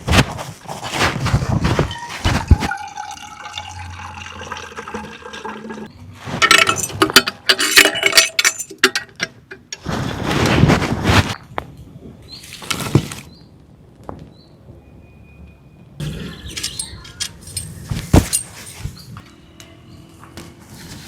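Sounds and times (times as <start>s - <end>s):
liquid pouring and sloshing: 2.0s - 6.8s
cookware clinking and knocking: 6.4s - 9.7s.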